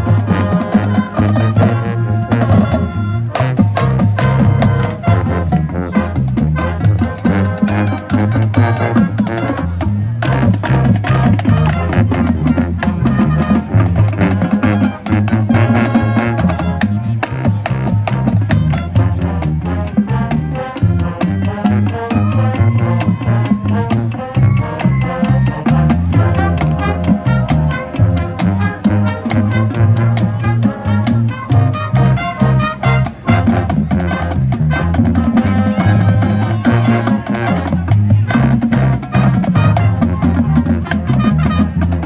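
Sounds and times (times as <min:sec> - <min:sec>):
marching band playing: 0:00.0 - 0:42.0.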